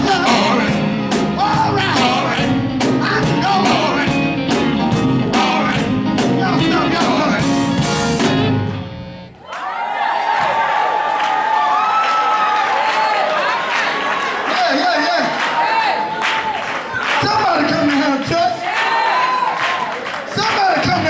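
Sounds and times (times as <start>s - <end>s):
voices singing gospel: 0.0s - 8.6s
steady drum beat: 0.0s - 8.8s
guitar: 0.0s - 9.4s.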